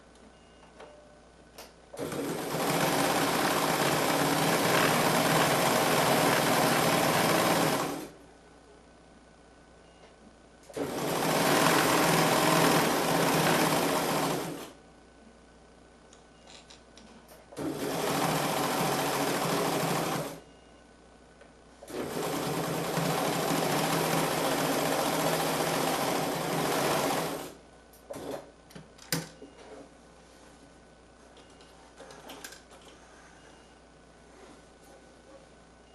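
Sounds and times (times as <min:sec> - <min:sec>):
sewing machine stitching: 0:02.0 - 0:08.1, 0:10.7 - 0:14.8, 0:17.6 - 0:20.4, 0:21.8 - 0:28.5.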